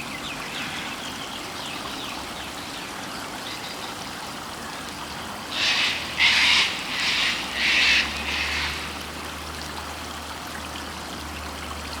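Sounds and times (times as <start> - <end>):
rocky stream rushing: 4.9 - 12.0.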